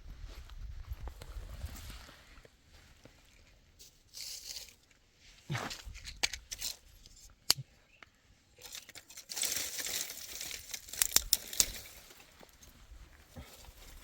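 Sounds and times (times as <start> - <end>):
dry material rustling and crinkling: 8.6 - 14.0.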